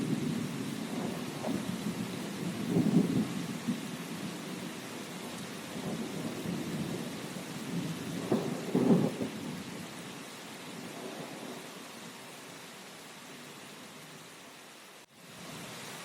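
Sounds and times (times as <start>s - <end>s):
thunder rumbling: 0.0s - 10.0s, 10.7s - 11.7s
steady rain: 0.0s - 16.0s.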